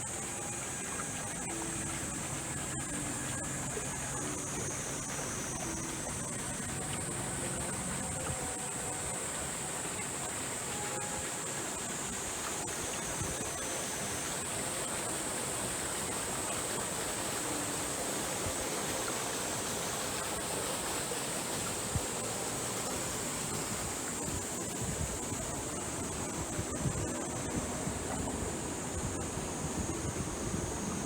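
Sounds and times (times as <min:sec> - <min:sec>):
running water rushing: 0:00.0 - 0:31.0.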